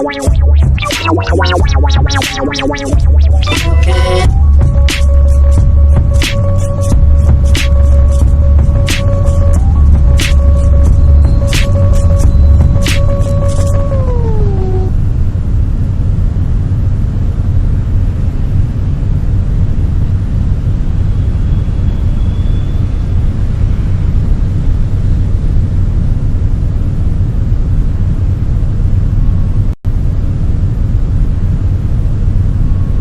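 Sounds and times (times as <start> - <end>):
loud low rumbling: 0.0 - 21.4.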